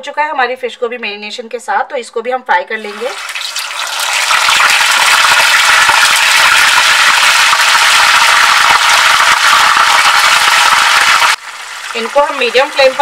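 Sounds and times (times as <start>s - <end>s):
fish sizzling in hot oil: 2.8s - 13.0s.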